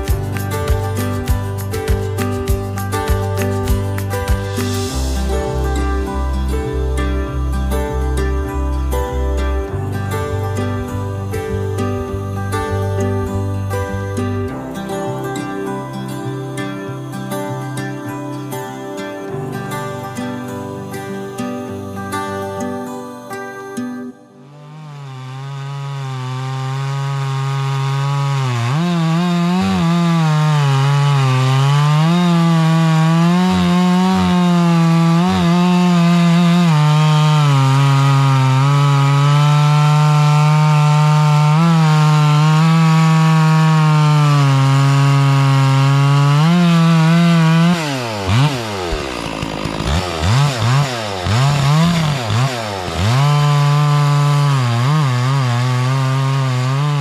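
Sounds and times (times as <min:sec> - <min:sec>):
chainsaw cutting logs: 0:00.0 - 0:57.0
chainsaw throttle blips: 0:24.6 - 0:57.0.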